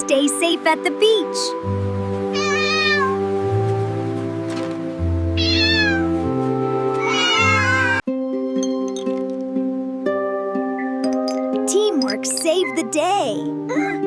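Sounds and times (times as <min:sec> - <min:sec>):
background music: 0:00.0 - 0:14.0
cat meowing: 0:02.3 - 0:03.4, 0:05.3 - 0:06.2, 0:07.0 - 0:08.0.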